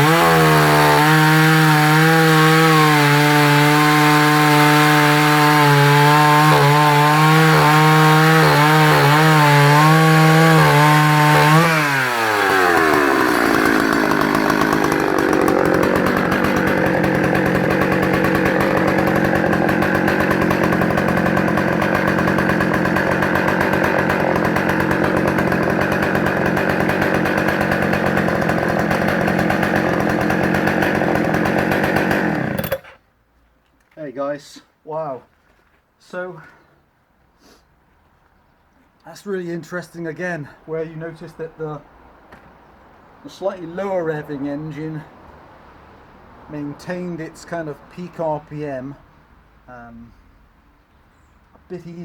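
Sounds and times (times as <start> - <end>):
chainsaw cutting and idling: 0.0 - 33.0.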